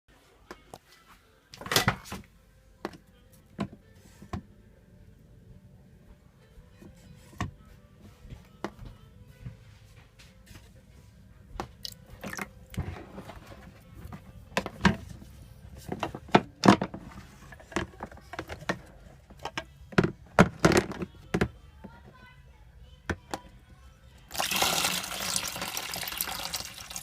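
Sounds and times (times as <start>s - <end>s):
hard plastic parts clicking and knocking: 12.2s - 22.2s.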